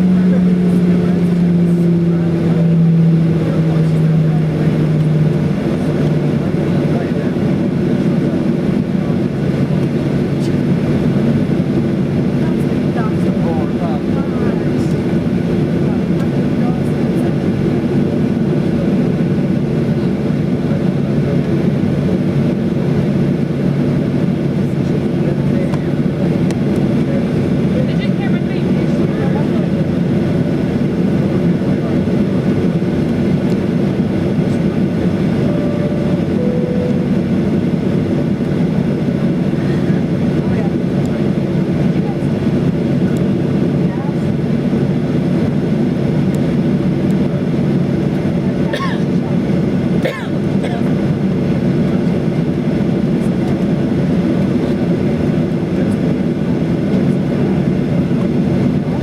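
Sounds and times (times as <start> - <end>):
airplane cabin rumble: 0.0 - 59.0
faint brief tones: 35.5 - 37.2.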